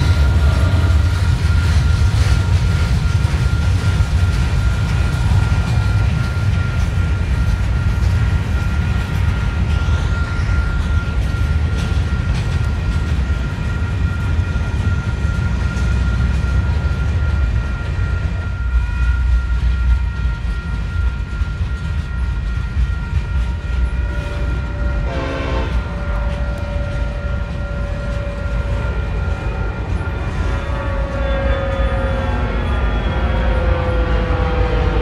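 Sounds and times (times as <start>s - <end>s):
freight train wheels rumbling: 0.0s - 35.0s
locomotive horn blast: 24.0s - 28.9s, 30.3s - 35.0s.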